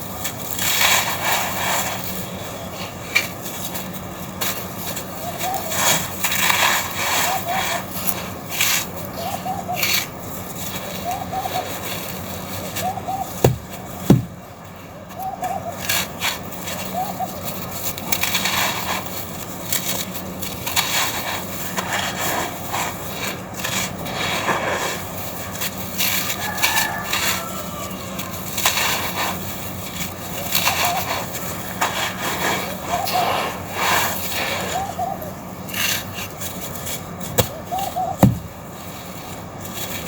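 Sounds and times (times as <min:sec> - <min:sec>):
gritty chunks crunching: 0:13.4 - 0:14.5, 0:35.7 - 0:40.0.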